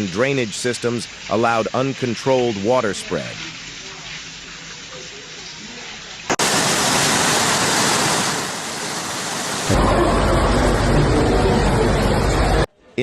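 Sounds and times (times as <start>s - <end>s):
rushing floodwater: 0.0s - 5.1s, 6.3s - 12.7s
deep rumble: 9.7s - 12.7s.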